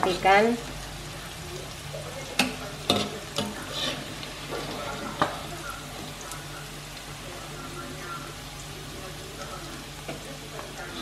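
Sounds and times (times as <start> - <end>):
fish sizzling in hot oil: 0.0 - 11.0
metal utensils scraping a wok: 2.4 - 5.5.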